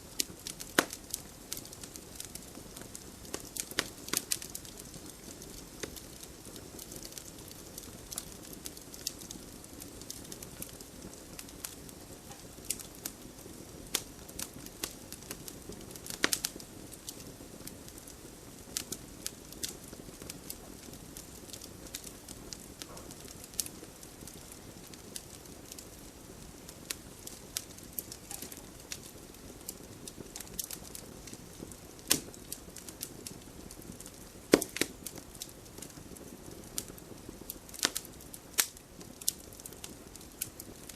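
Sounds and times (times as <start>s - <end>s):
fire hissing: 0.0s - 40.9s
wood fire crackling and popping: 0.0s - 40.9s.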